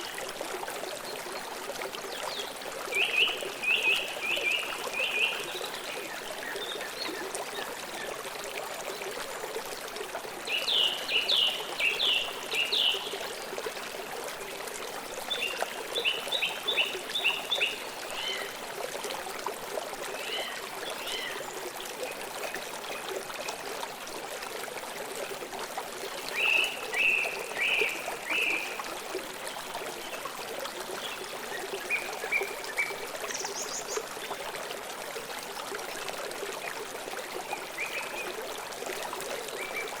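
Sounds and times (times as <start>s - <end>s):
river water flowing: 0.0s - 40.0s.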